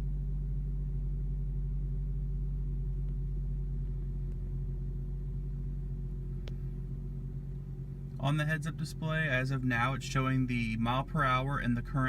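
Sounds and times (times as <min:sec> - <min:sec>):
car engine humming in cabin: 0:00.0 - 0:12.0.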